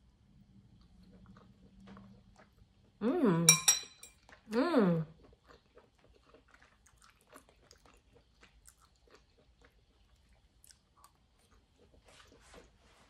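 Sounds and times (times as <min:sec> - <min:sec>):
faint chewing mouth clicks: 0:05.2 - 0:12.6.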